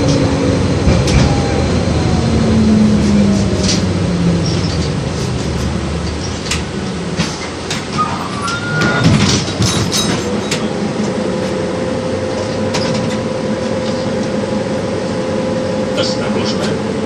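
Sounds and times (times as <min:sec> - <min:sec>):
tram running rumble: 0:00.0 - 0:17.0
high squeal: 0:07.9 - 0:09.2.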